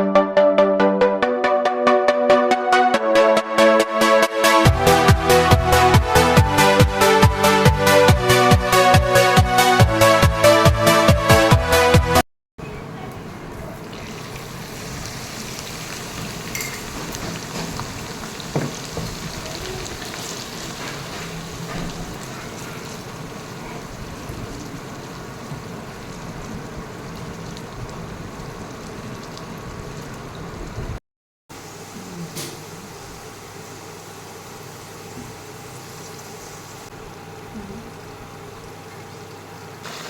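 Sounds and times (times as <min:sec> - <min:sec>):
food sizzling in hot oil: 0:13.9 - 0:30.6, 0:32.6 - 0:36.9.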